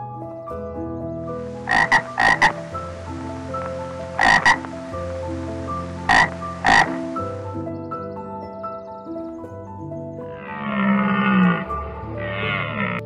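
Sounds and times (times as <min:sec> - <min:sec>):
tree frog croaking: 0:01.4 - 0:07.9, 0:10.2 - 0:13.0.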